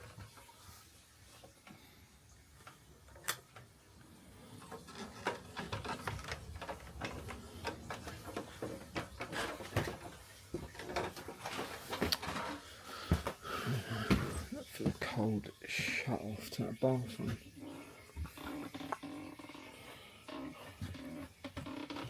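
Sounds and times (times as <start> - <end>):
objects being handled: 4.4 - 15.1.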